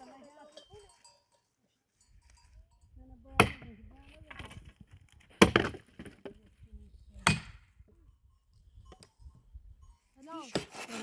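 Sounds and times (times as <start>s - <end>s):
firewood cracking under strikes: 5.2s - 6.2s.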